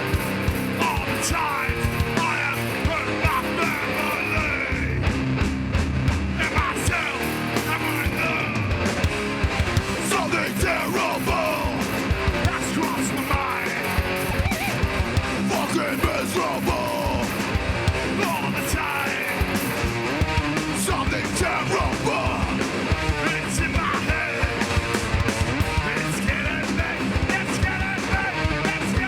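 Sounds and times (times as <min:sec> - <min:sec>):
live hardcore band playing: 0:00.0 - 0:29.0
rapid drum hits: 0:00.0 - 0:29.0
shouted vocals: 0:06.4 - 0:08.8, 0:10.0 - 0:17.4, 0:20.7 - 0:22.6.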